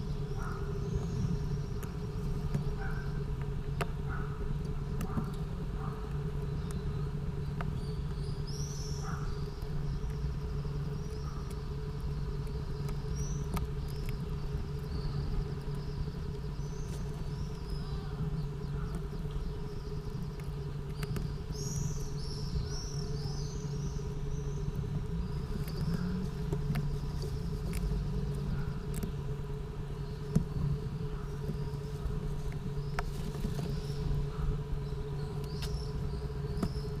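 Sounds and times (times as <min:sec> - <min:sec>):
steady low hum: 0:00.0 - 0:37.0
high chirping bird calls: 0:05.8 - 0:28.8.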